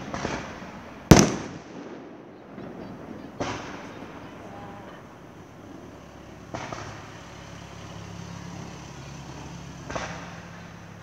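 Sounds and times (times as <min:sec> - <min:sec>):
distant fireworks bangs: 0:00.0 - 0:05.6, 0:06.4 - 0:07.2.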